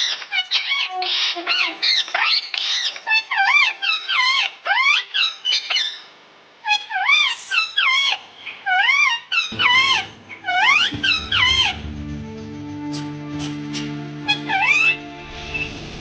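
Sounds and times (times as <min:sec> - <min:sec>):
background music: 0:09.5 - 0:16.0
parrot whistling calls: 0:13.0 - 0:15.2.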